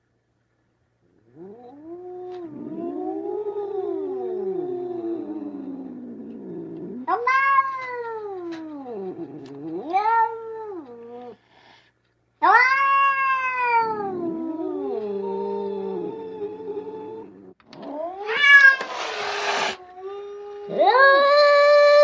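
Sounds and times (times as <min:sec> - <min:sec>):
cat meowing: 0:12.4 - 0:17.2, 0:17.8 - 0:22.0.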